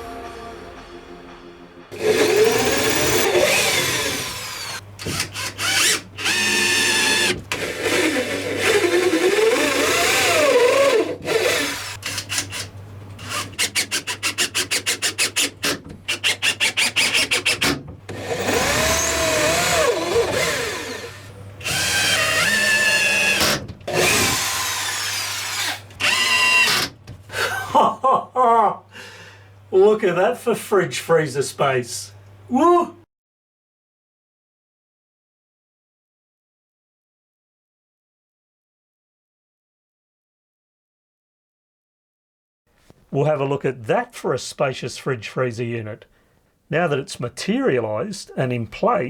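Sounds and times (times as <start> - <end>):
power drill motor whine: 2.0 - 12.6, 17.0 - 26.9.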